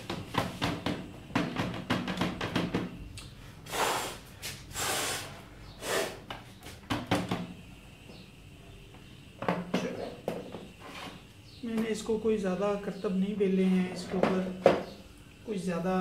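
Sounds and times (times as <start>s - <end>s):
short rushing air bursts: 3.6s - 6.3s.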